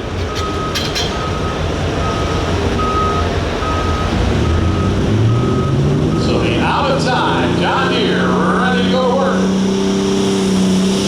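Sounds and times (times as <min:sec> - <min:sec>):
heavy engine rumbling: 0:00.0 - 0:11.0
backup alarm beeping: 0:00.2 - 0:07.5.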